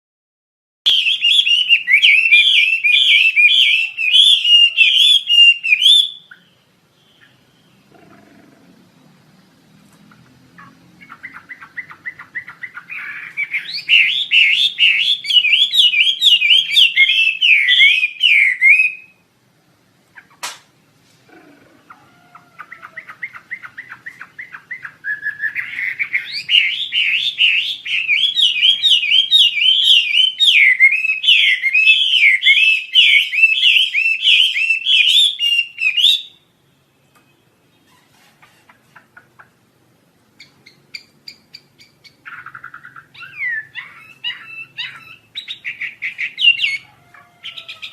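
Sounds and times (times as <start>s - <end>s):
songbird chirping: 0.8s - 47.9s
sharp click: 20.4s - 20.7s.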